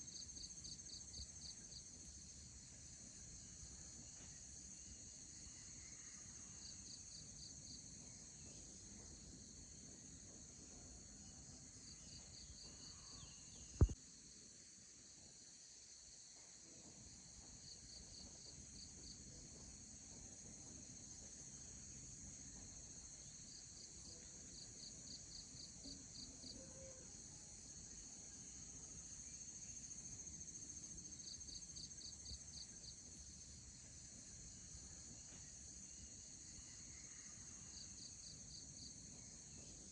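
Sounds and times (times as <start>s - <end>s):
insects trilling: 11.0s - 14.0s, 21.1s - 39.9s.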